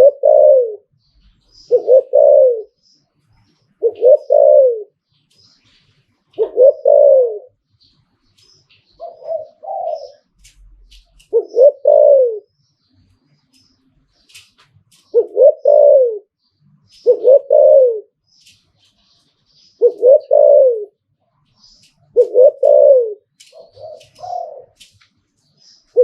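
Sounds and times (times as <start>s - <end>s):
dove cooing: 0.0s - 0.9s, 1.6s - 2.8s, 3.8s - 5.0s, 6.3s - 7.6s, 8.9s - 12.5s, 15.0s - 16.3s, 16.9s - 18.2s, 19.8s - 21.0s, 22.1s - 24.9s.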